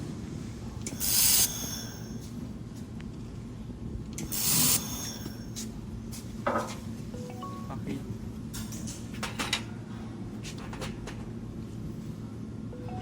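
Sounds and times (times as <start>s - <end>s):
steady machine hum: 0.0s - 8.8s
laser welder hissing bursts: 0.9s - 2.2s, 4.2s - 5.5s.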